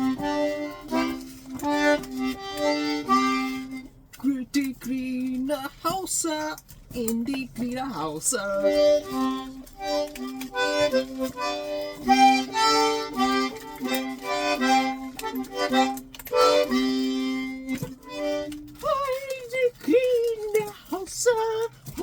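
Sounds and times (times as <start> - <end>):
accordion playing a tune: 0.0 - 4.0, 8.0 - 20.6.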